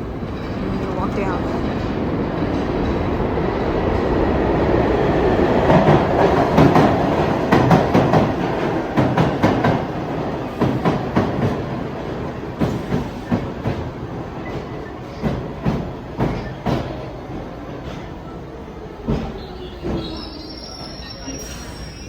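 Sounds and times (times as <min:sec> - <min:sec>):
subway train rumble: 0:00.0 - 0:22.0
train wheels clacking on rail joints: 0:12.6 - 0:17.1.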